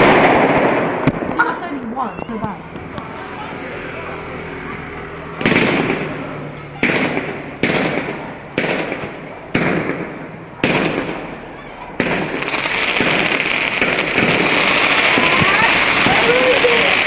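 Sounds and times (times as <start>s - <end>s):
fireworks bangs: 0.0s - 3.4s, 5.3s - 17.0s
fireworks crackling: 0.0s - 3.7s, 4.8s - 17.0s.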